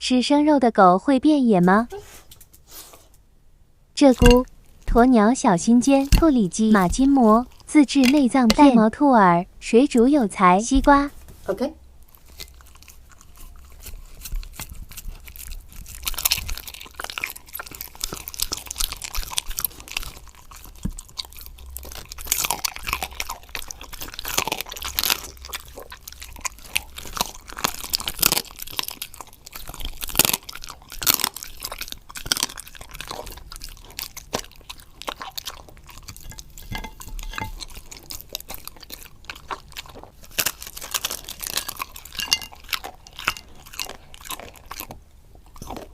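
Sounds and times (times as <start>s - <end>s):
dog chewing crunches: 4.1s - 9.1s, 12.0s - 45.9s.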